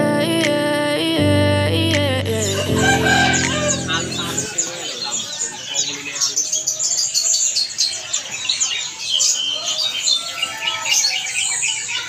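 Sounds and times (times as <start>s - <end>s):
songbirds chirping and whistling: 3.1s - 12.0s.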